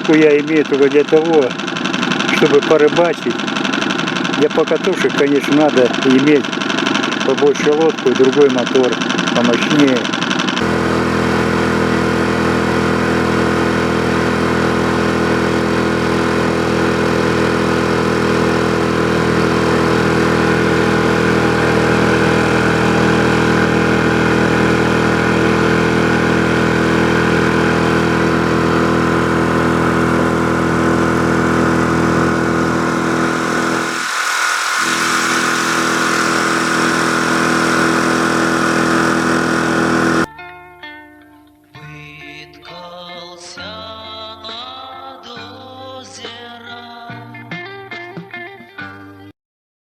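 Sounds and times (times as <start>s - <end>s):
outboard motor running: 0.0s - 40.3s
hiss: 34.0s - 37.7s.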